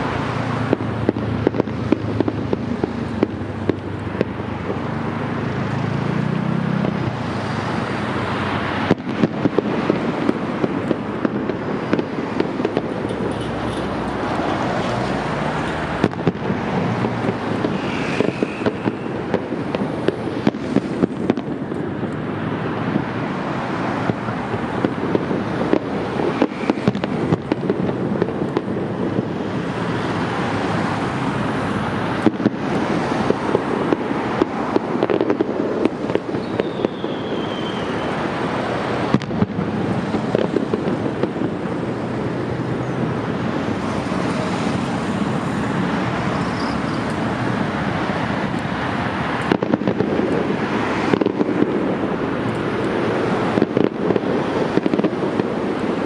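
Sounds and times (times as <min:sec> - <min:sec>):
fireworks bangs and crackles: 0:00.0 - 0:56.0
falling whistle: 0:17.8 - 0:19.1, 0:36.4 - 0:38.1.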